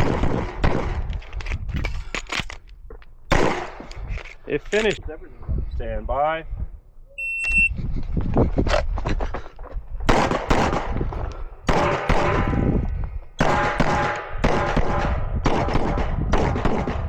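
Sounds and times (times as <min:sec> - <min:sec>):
pistol shots: 0:00.0 - 0:01.1, 0:03.3 - 0:03.9, 0:10.1 - 0:11.0, 0:11.6 - 0:12.5, 0:13.4 - 0:17.0
shot timer beep: 0:07.2 - 0:07.7.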